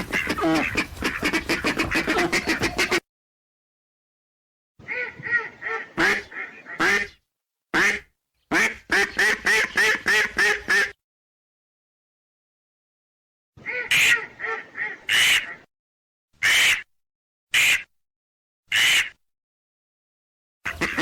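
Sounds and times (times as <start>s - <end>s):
ducks quacking: 0.0s - 3.0s, 4.8s - 7.2s, 7.8s - 11.0s, 13.6s - 15.7s, 20.7s - 21.0s.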